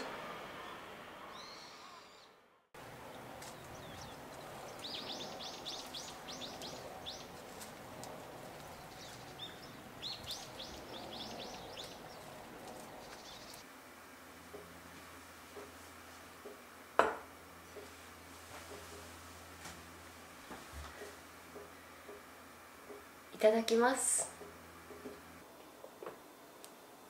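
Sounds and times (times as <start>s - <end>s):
steady background noise: 2.8s - 27.0s
songbird chirping: 3.0s - 13.6s.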